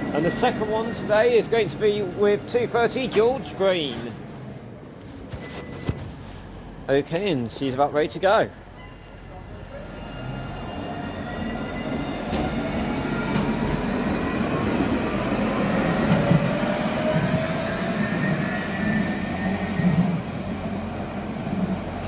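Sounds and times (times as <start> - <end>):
wheels rumbling on rail: 8.4 - 22.0.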